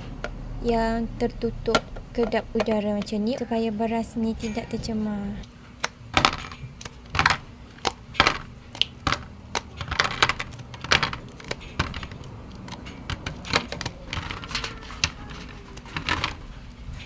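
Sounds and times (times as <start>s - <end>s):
frozen rice cubes clattering: 5.8s - 17.0s.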